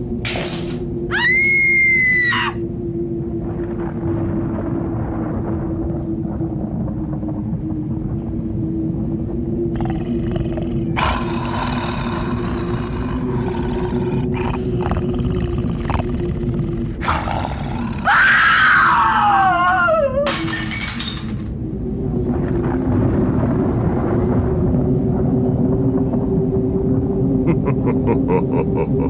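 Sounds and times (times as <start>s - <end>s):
low rumbling drone: 0.0s - 29.0s
loud falling shriek: 1.1s - 2.6s.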